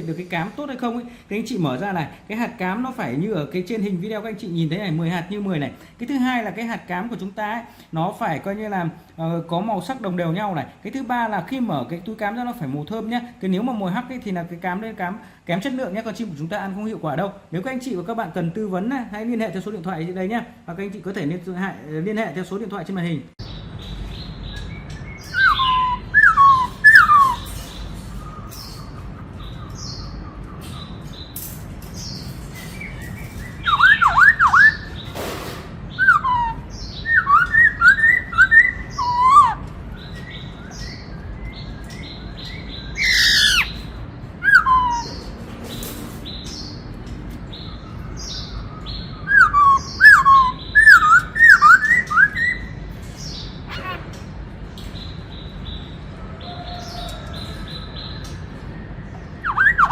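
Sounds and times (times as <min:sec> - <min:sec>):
bird whistled song: 0:23.4 - 0:31.4, 0:32.0 - 0:35.2, 0:35.9 - 0:45.4, 0:47.5 - 0:53.5, 0:55.0 - 0:59.9.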